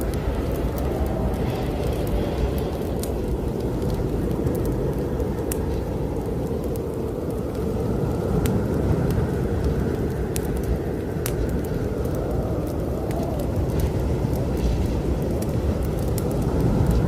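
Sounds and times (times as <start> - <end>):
wind blowing low rumble: 0.0 - 17.0
wind whistling: 0.0 - 17.0
wood fire crackling and popping: 0.0 - 17.0.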